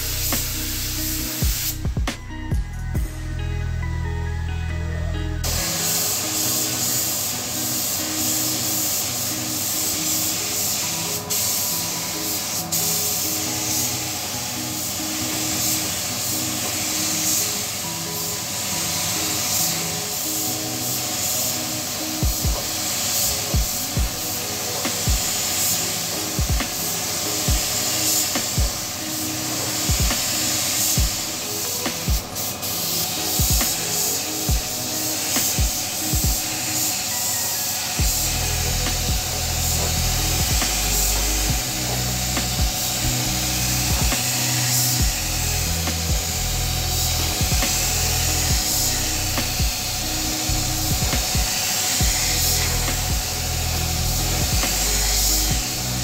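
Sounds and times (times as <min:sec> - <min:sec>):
spray gun hissing: 0:00.0 - 0:02.3, 0:05.4 - 0:56.0
music with thumping bass beat: 0:00.0 - 0:03.9, 0:22.2 - 0:22.8, 0:23.5 - 0:24.2, 0:25.1 - 0:25.4, 0:26.4 - 0:26.8, 0:27.5 - 0:27.8, 0:28.4 - 0:28.9, 0:29.8 - 0:30.4, 0:31.0 - 0:31.3, 0:31.9 - 0:32.3, 0:33.4 - 0:33.8, 0:34.5 - 0:34.8, 0:35.4 - 0:36.6, 0:38.0 - 0:56.0.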